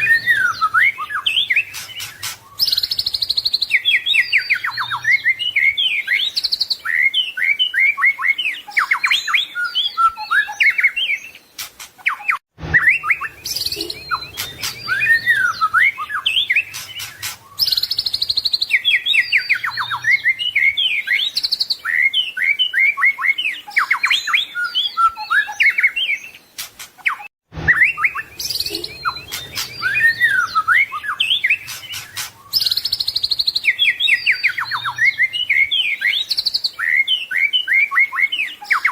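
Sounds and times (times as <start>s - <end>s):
songbird singing varied song: 0.0s - 38.9s.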